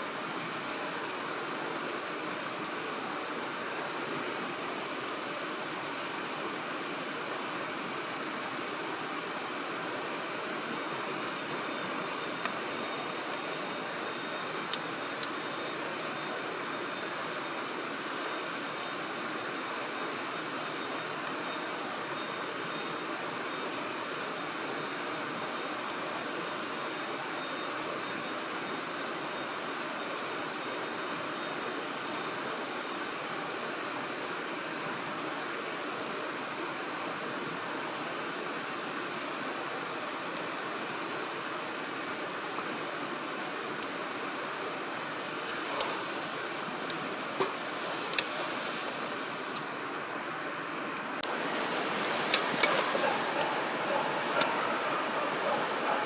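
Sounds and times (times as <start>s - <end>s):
firewood crackling and popping: 0.1s - 56.0s
steady rushing hiss: 38.4s - 56.0s.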